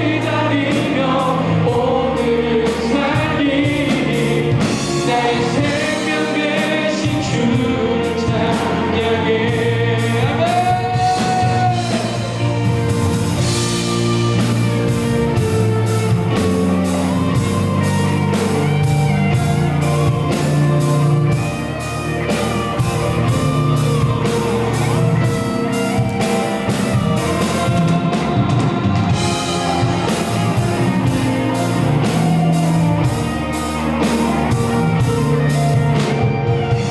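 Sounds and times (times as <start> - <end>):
live rock band playing: 0.0 - 36.9
person singing: 0.0 - 36.9.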